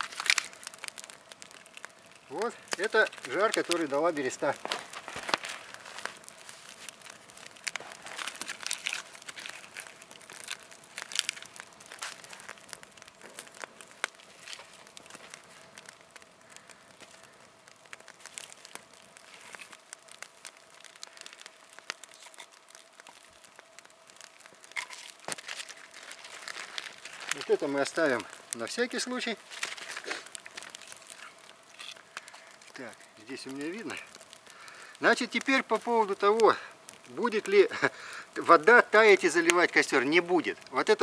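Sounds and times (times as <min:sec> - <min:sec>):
fire crackling and popping: 0:00.0 - 0:41.0
dry material rustling: 0:02.8 - 0:12.6, 0:24.6 - 0:32.8.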